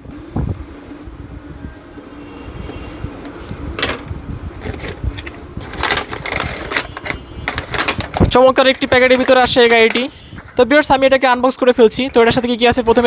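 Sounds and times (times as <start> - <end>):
packaging rustling and clicking: 4.6 - 10.6.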